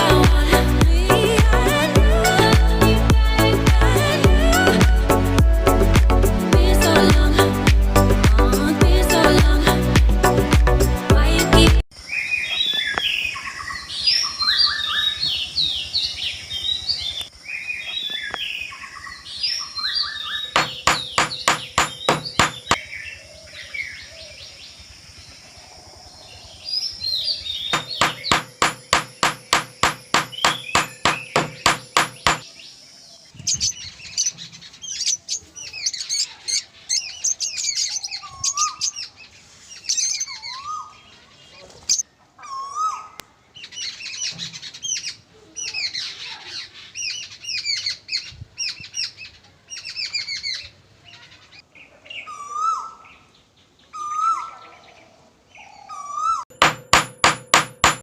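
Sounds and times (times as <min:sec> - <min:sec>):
birds chirping and twittering: 0:12.0 - 0:58.0
even knocks: 0:20.6 - 0:22.8, 0:27.8 - 0:32.4.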